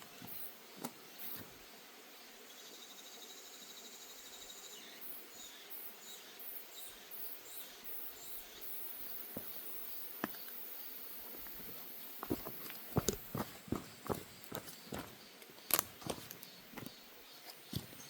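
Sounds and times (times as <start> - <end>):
insects trilling: 0.0 - 18.0
footsteps on wooden deck: 11.2 - 17.0, 17.6 - 18.0.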